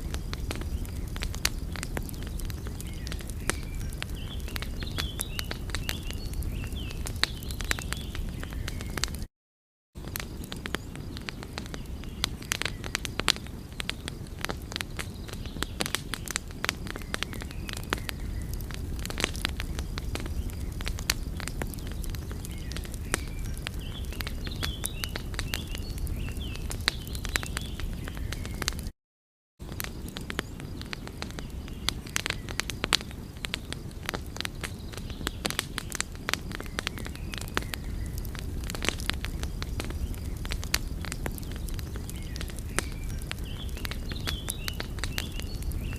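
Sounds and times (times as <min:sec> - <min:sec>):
low rumble of flames: 0:00.0 - 0:09.3, 0:10.0 - 0:28.9, 0:29.6 - 0:45.9
wood fire crackling: 0:00.0 - 0:09.3, 0:10.0 - 0:28.9, 0:29.6 - 0:45.9.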